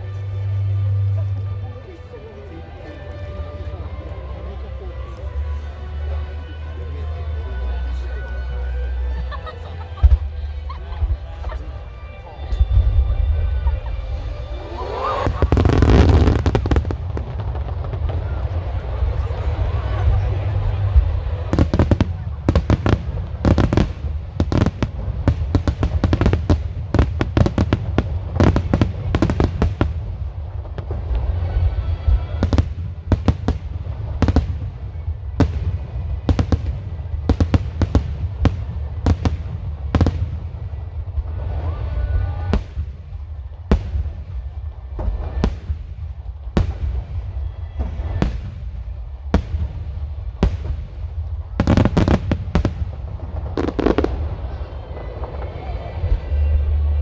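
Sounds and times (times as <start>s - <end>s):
deep continuous rumble: 0.0s - 57.0s
firework shells booming: 15.1s - 18.4s, 20.8s - 30.9s, 32.1s - 40.8s, 43.7s - 54.3s.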